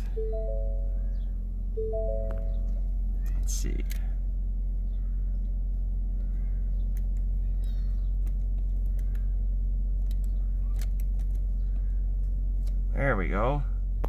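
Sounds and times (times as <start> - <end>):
car engine idling: 0.0 - 14.0
faint clicks: 6.2 - 9.3.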